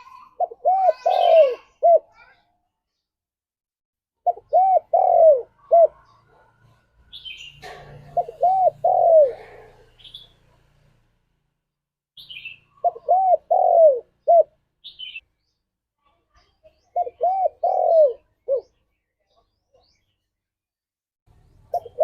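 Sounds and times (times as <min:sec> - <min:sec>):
dove cooing: 0:00.1 - 0:02.2, 0:04.2 - 0:06.8, 0:07.6 - 0:10.1, 0:12.7 - 0:15.2, 0:16.9 - 0:18.7, 0:21.7 - 0:22.0
small bird high chirps: 0:12.2 - 0:13.8, 0:14.8 - 0:20.4.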